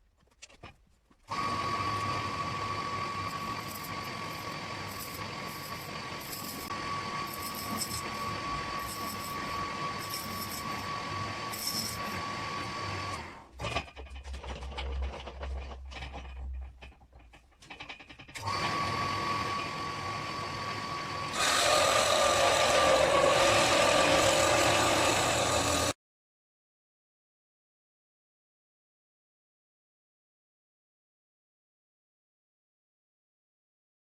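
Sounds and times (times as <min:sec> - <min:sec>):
power tool motor whining: 0:01.3 - 0:13.5, 0:18.4 - 0:26.0.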